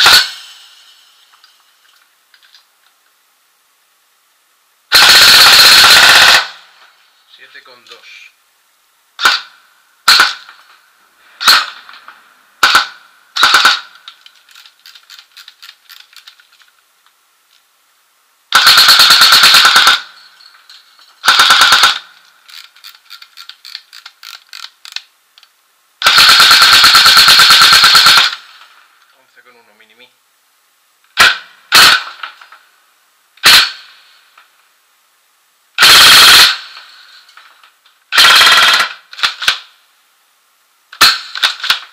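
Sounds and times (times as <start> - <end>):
airsoft gun firing: 0.0 - 0.7, 4.9 - 6.7, 9.2 - 10.6, 11.4 - 12.0, 12.6 - 14.0, 18.5 - 20.2, 21.2 - 22.1, 26.0 - 28.6, 31.2 - 32.4, 33.4 - 34.0, 35.8 - 36.9, 38.1 - 39.7, 41.0 - 41.9.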